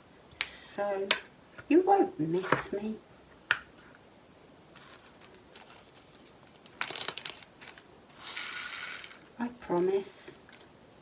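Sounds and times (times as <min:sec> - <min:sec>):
plastic bag crinkling: 0:04.7 - 0:09.3.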